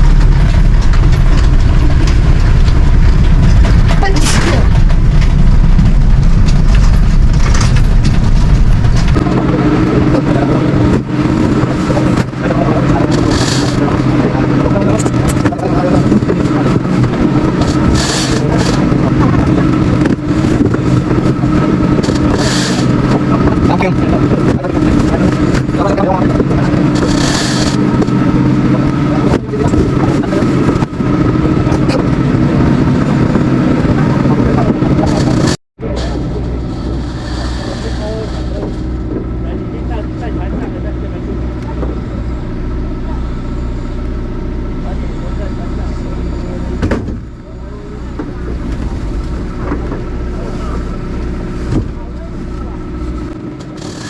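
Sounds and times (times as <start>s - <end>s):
engine running with low rumble: 0.0s - 54.0s.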